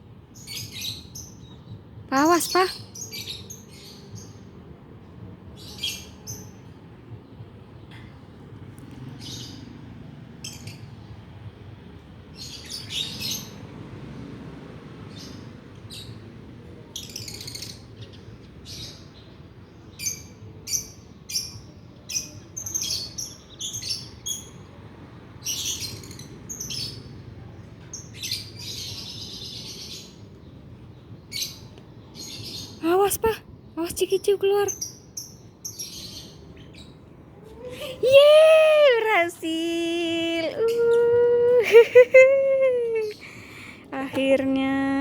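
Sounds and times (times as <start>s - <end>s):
lovebirds chirping and squawking: 9.2s - 9.8s, 12.4s - 13.7s, 17.0s - 19.2s, 20.0s - 24.6s, 25.4s - 27.2s, 27.9s - 30.4s, 31.3s - 38.3s, 40.4s - 43.8s.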